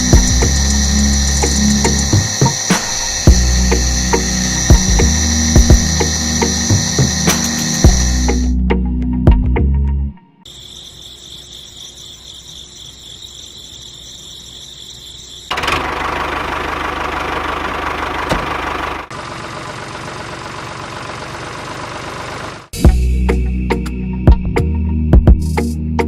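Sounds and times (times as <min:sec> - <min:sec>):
motor rattling: 0:00.0 - 0:08.5, 0:12.6 - 0:22.8
small electric motor whining: 0:00.0 - 0:08.5.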